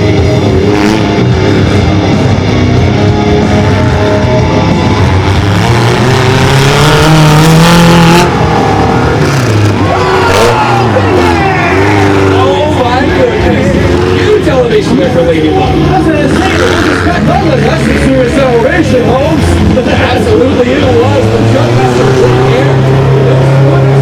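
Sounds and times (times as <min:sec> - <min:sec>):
rock music: 0:00.0 - 0:24.0
mini monster truck engines revving: 0:05.0 - 0:24.0.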